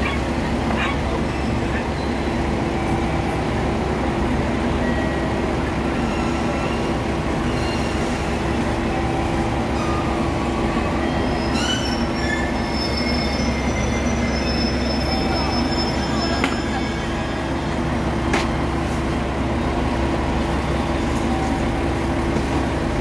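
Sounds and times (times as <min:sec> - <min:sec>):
diesel train rumble inside carriage: 0:00.0 - 0:23.0
short high squeals: 0:11.0 - 0:17.6.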